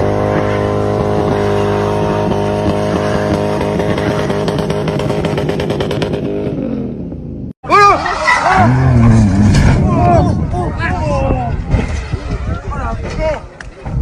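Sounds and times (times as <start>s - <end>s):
vehicle engine droning: 0.0s - 7.5s, 8.2s - 12.2s.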